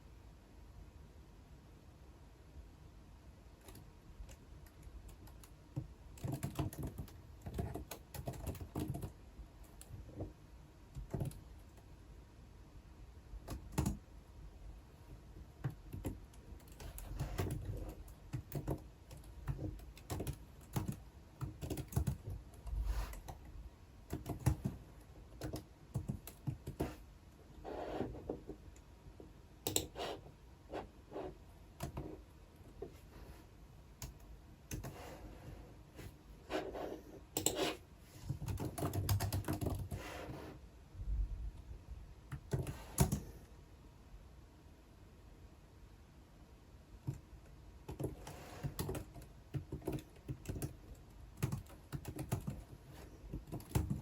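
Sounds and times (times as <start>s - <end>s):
typing on computer keyboard: 3.6s - 10.3s, 10.9s - 11.8s, 13.4s - 14.0s, 15.6s - 23.4s, 24.1s - 27.0s, 29.6s - 30.0s, 34.0s - 35.0s, 37.4s - 40.0s, 42.3s - 43.3s, 47.8s - 54.0s.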